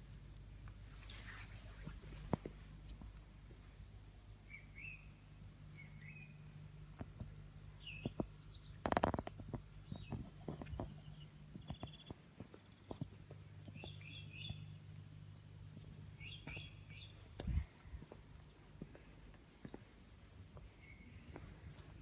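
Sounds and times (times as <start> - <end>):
low steady hum: 0.0 - 22.0
small birds chirping: 3.7 - 18.6, 20.6 - 22.0.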